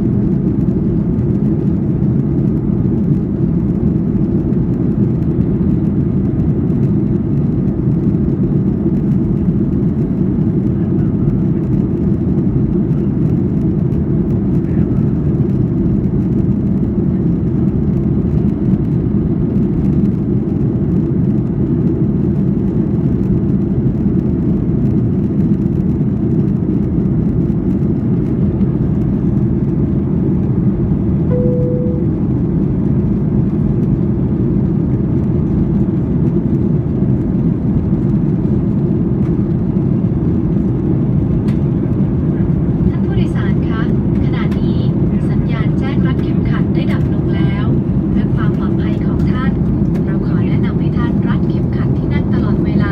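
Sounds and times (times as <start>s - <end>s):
jet engine and airflow rumble: 0.0s - 52.9s
single tone: 31.3s - 32.4s.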